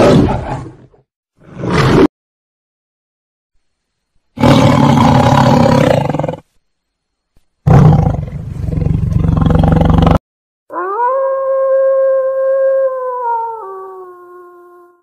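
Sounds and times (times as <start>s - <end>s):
tiger roaring: 4.4s - 6.4s
wolf howling: 10.7s - 15.0s.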